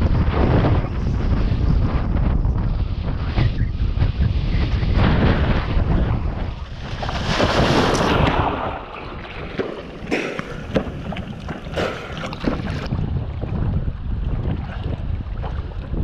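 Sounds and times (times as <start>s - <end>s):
wind buffeting microphone: 0.0s - 16.0s
sharp splashes or knocks: 6.9s - 12.9s
rushing water: 7.1s - 13.0s.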